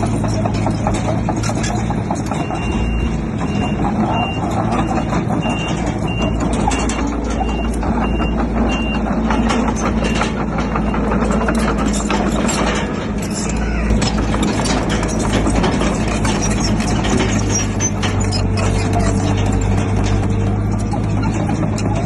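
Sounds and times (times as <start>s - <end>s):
diesel earthmoving machinery running: 0.0s - 22.0s
metallic clanks: 0.0s - 22.0s
reversing alarm beeping: 2.2s - 11.6s.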